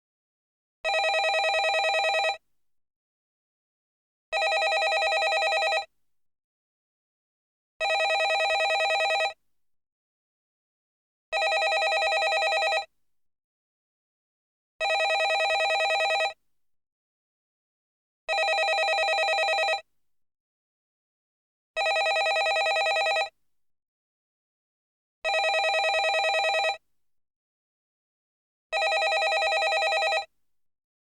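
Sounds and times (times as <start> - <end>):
landline telephone ringing: 0.9 - 2.4, 4.4 - 5.9, 7.8 - 9.4, 11.4 - 12.9, 14.8 - 16.4, 18.3 - 19.8, 21.8 - 23.3, 25.3 - 26.8, 28.8 - 30.3.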